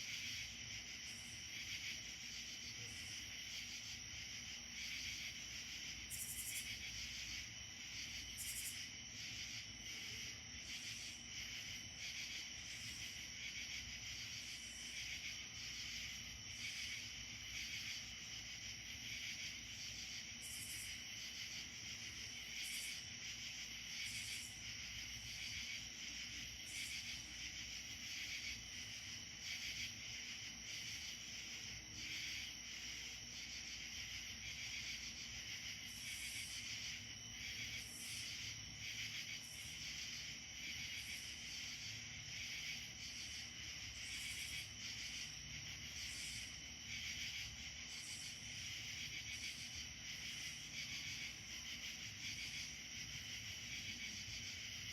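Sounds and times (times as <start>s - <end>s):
crickets and insects trilling: 0.0s - 54.9s.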